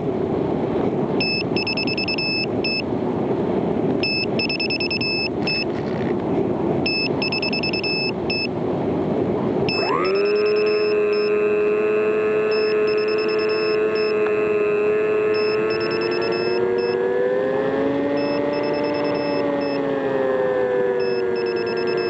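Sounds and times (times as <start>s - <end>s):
faint high electronic beeps: 1.2s - 2.8s, 4.0s - 5.7s, 6.9s - 8.5s, 9.7s - 11.4s, 12.5s - 14.2s, 15.3s - 17.0s, 18.1s - 19.8s, 21.0s - 22.0s.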